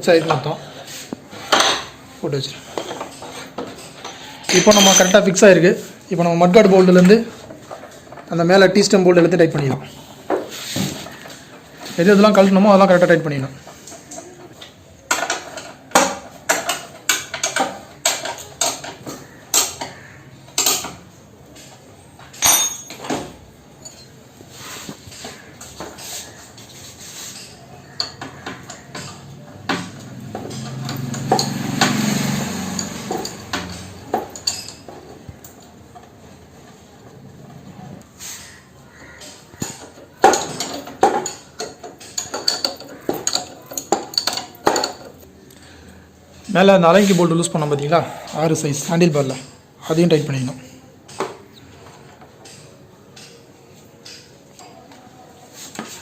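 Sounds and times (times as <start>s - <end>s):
metal clanks: 2.8s - 5.4s.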